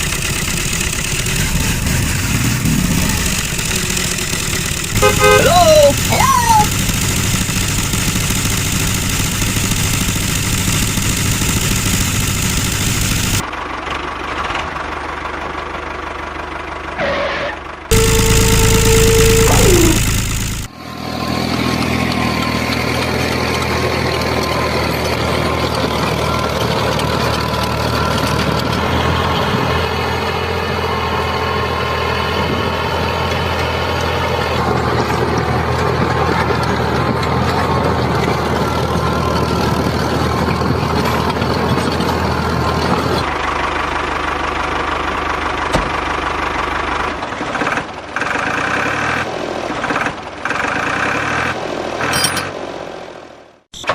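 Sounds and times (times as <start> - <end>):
small motor running: 0.0 - 13.5, 17.9 - 20.7.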